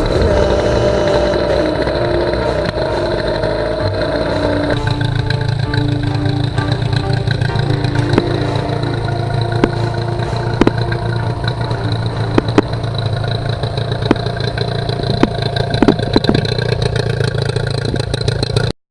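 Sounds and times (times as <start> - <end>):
outboard motor running: 0.0 - 18.7
sharp clicks or knocks: 6.5 - 17.2.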